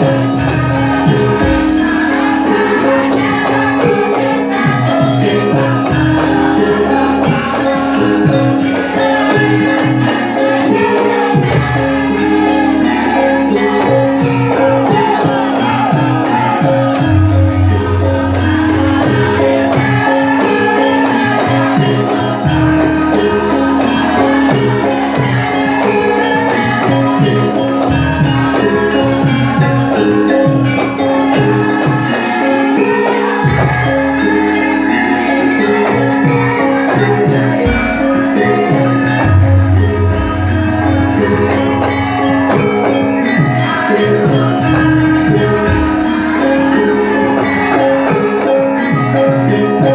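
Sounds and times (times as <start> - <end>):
jingling tambourine percussion: 0.0 - 49.9
deep bass note: 1.2 - 2.5.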